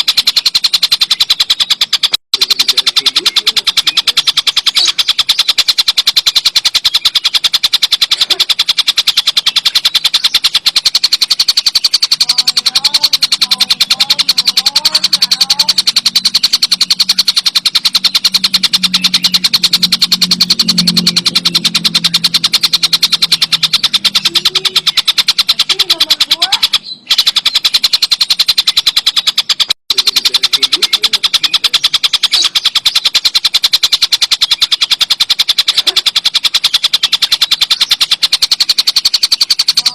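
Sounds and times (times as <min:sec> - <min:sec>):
kingfisher rattling call: 0:00.0 - 0:39.9.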